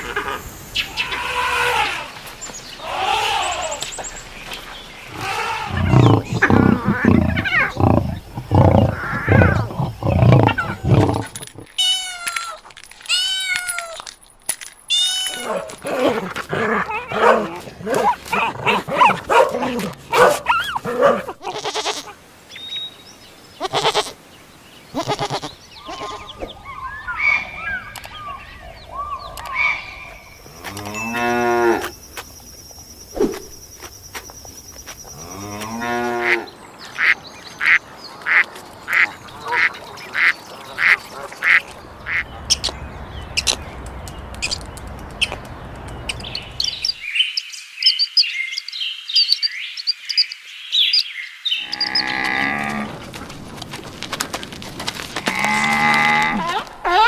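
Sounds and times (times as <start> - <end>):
long pitched animal calls: 5.1 - 12.1.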